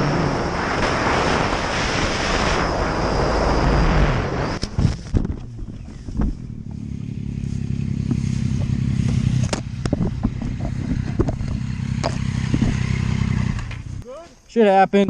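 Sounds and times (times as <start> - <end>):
motorcycle engine at low revs: 0.0 - 14.0
sharp knocks and clatter: 8.0 - 13.9.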